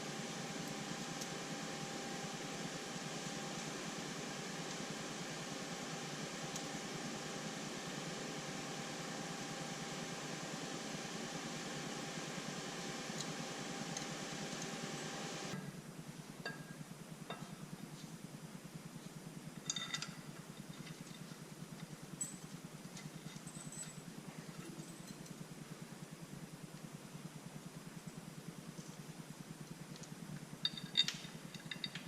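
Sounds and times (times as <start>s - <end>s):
machine hum: 0.0s - 16.1s
metallic clinks: 23.3s - 25.4s, 30.6s - 32.0s.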